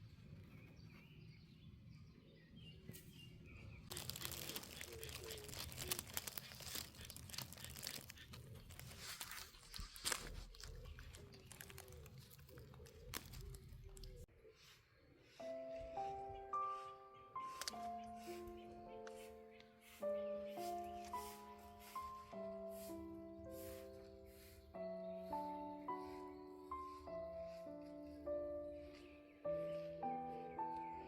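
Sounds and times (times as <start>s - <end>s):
close rustling and crunching: 3.9s - 14.3s, 17.0s - 31.0s.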